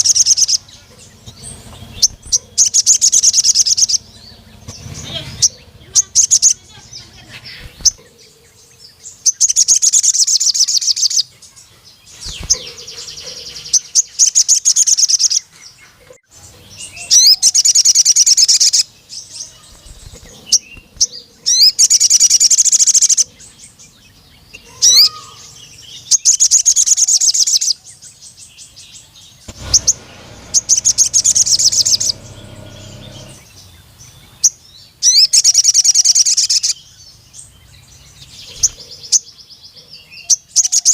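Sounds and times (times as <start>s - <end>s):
sharp bird chirps: 0.0s - 8.4s, 12.1s - 15.5s, 29.3s - 36.8s
sunbird fast high trilling: 29.5s - 33.5s.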